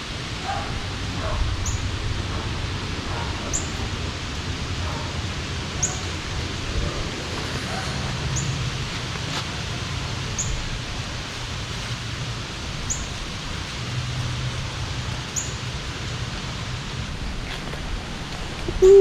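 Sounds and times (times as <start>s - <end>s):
steady background hiss: 0.0s - 19.0s
bird chirping: 18.7s - 19.0s.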